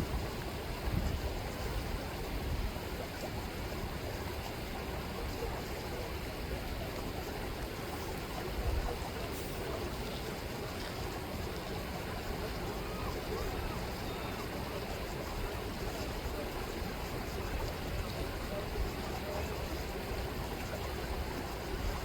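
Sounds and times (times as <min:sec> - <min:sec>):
river water flowing: 0:00.0 - 0:22.0.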